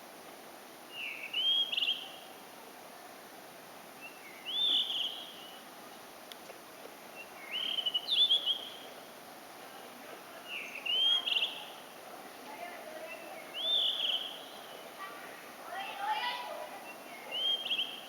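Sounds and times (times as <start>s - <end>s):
bird singing whistled notes: 0.9s - 2.2s, 4.0s - 5.6s, 7.1s - 8.9s, 10.5s - 11.7s, 13.1s - 15.0s, 16.8s - 18.0s.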